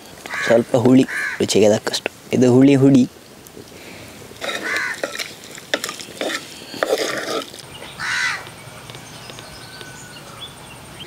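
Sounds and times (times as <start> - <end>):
bird calling: 0.0 - 1.6, 3.8 - 11.0.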